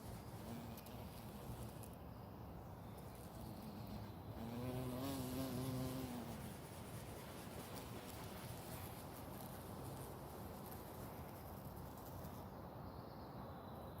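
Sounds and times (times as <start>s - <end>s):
bee wings buzzing: 0.1s - 1.9s, 3.2s - 12.2s.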